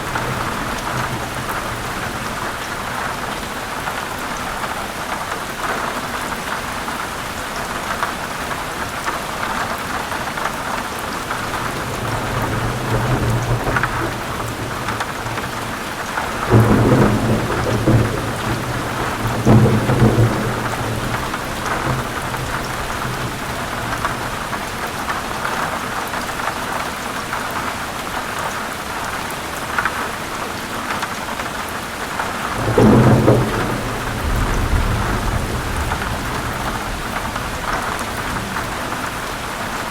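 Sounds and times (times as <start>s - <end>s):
heavy rain on leaves: 0.0s - 39.9s
thunder rumbling: 11.3s - 24.8s, 32.2s - 39.9s.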